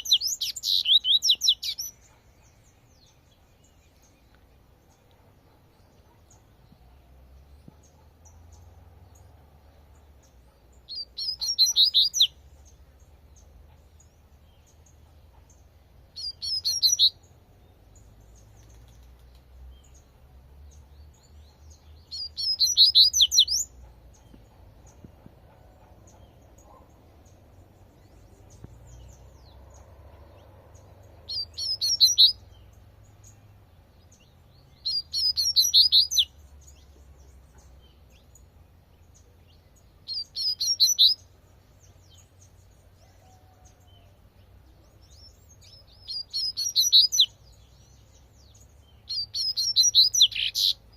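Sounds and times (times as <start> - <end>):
faint low rumble: 23.4 - 35.2.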